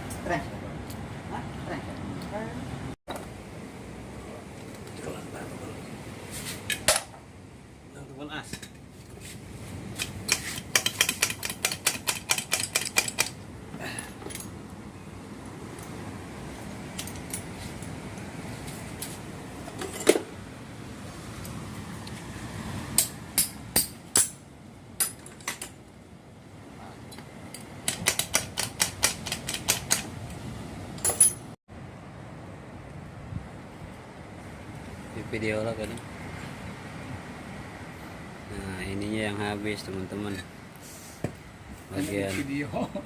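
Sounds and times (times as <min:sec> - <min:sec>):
metallic clicks and taps of tools: 0:10.0 - 0:13.4, 0:27.1 - 0:30.4.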